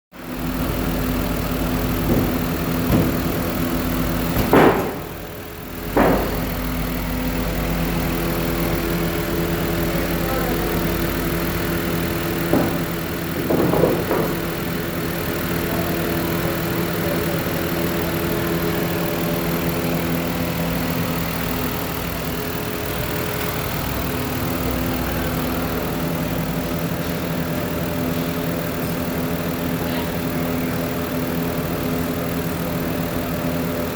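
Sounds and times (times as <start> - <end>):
car engine idling: 0.1 - 33.9
engine bursts: 0.2 - 33.9.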